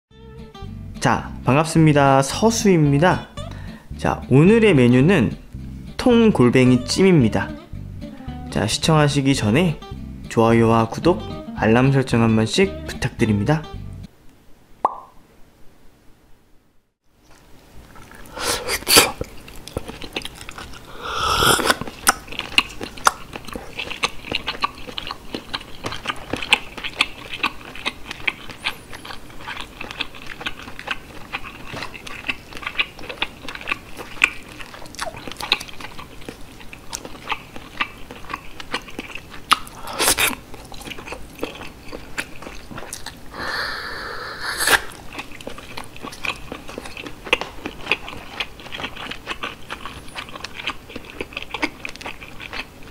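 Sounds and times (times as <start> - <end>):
wet chewing mouth sounds: 17.3 - 52.9.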